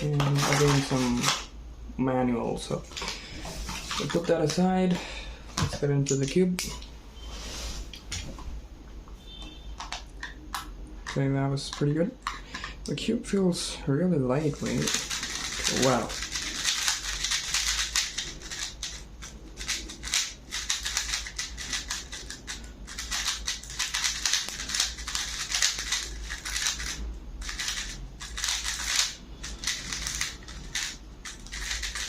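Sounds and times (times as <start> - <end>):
speed cube plastic clicks: 14.8 - 32.0.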